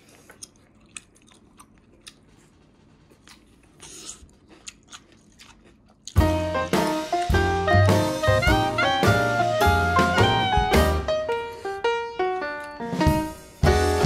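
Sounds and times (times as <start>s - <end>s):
crunchy chewing: 0.0s - 6.3s.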